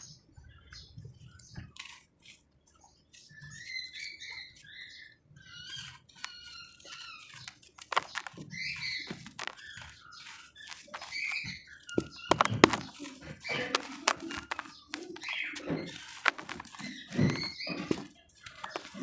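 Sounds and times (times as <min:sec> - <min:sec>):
damp cement crumbling: 0:07.4 - 0:19.0.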